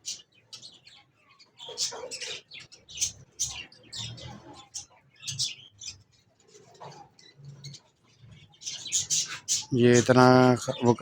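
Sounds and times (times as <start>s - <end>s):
parrots chirping: 0.0s - 11.0s.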